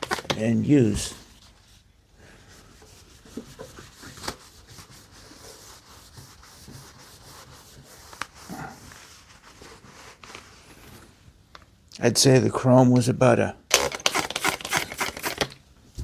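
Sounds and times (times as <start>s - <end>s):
cloth rubbing on chrome grille: 1.4s - 11.2s.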